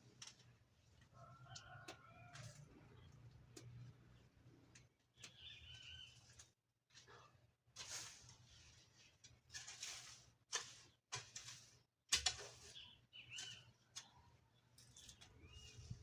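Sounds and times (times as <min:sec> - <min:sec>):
rustling and scraping: 0:04.6 - 0:16.0
bird calls: 0:12.7 - 0:14.3.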